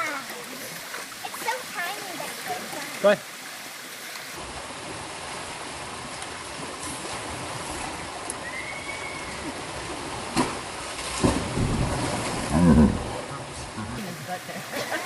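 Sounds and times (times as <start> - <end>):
waterfall rushing: 7.6 - 10.3
sharp knocks or splashes: 10.2 - 13.3.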